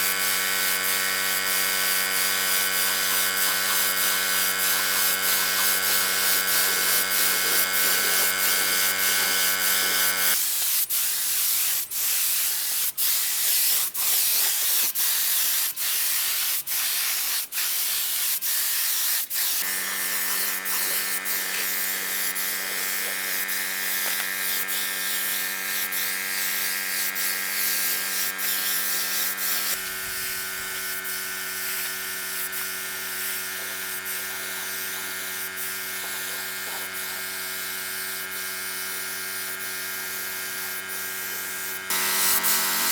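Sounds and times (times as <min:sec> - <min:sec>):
electric power tool motor running: 0:00.0 - 0:10.4, 0:19.6 - 0:42.9.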